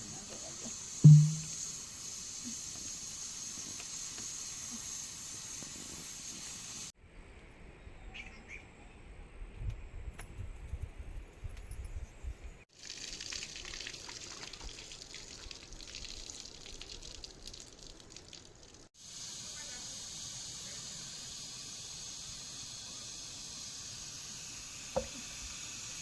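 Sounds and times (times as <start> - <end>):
water running and splashing: 12.7 - 26.0
heavy rain hissing: 19.0 - 26.0.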